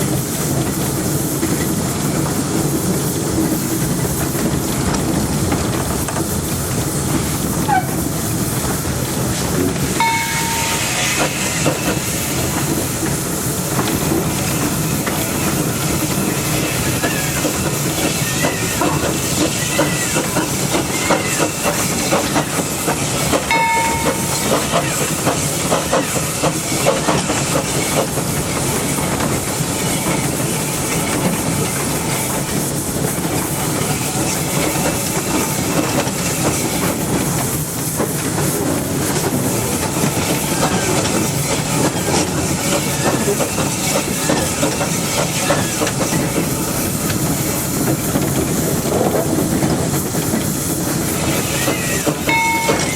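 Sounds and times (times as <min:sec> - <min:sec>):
hiss of steam: 0:00.0 - 0:52.9
brief high tone: 0:52.3 - 0:52.9.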